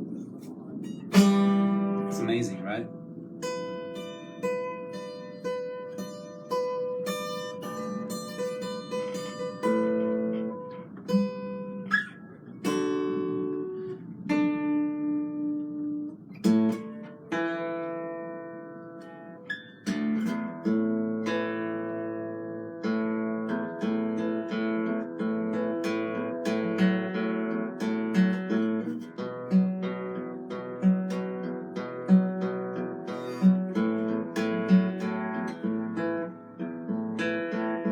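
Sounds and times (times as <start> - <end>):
acoustic guitar: 0.0 - 37.9.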